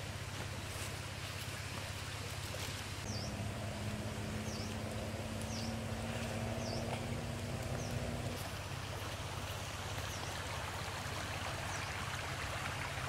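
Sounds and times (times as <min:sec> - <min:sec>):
faint steady drone: 0:03.0 - 0:13.0
steady low rumble: 0:03.0 - 0:13.0.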